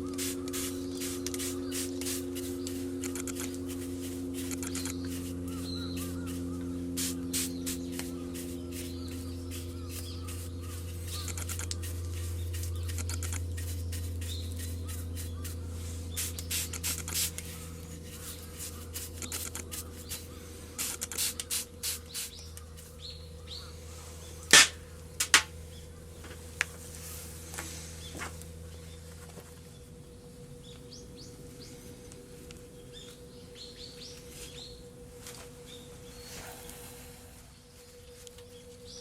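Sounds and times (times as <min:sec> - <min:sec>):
steady low hum: 0:00.0 - 0:39.0
metal tools clicking and tapping: 0:24.5 - 0:25.5
sharp metal strikes: 0:24.5 - 0:25.5.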